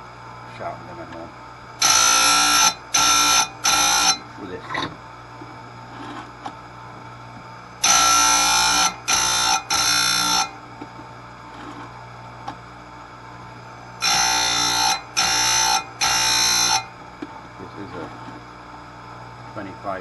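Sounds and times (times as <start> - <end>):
grinding wheel grinding chain teeth: 1.8 - 4.2, 7.8 - 10.6, 14.0 - 16.9
grinder motor humming: 1.8 - 12.0, 13.4 - 18.4.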